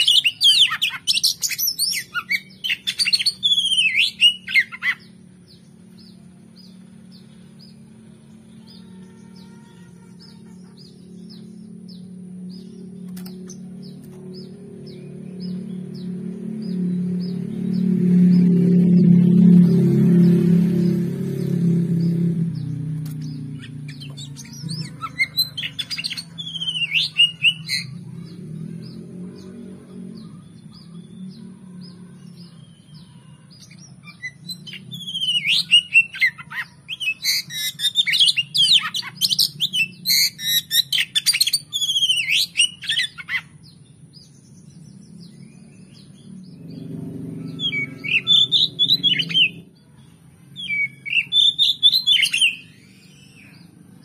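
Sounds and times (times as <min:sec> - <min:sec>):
bird singing whistles: 0:00.0 - 0:05.0, 0:23.6 - 0:27.9, 0:34.0 - 0:43.4, 0:47.5 - 0:49.6, 0:50.6 - 0:53.6.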